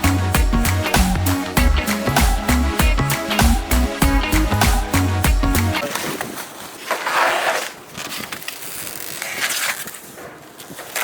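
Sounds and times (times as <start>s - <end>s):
background music with a beat: 0.0s - 5.8s
packaging rustling and scraping: 5.8s - 11.0s
adhesive tape peeled and torn: 6.9s - 11.0s.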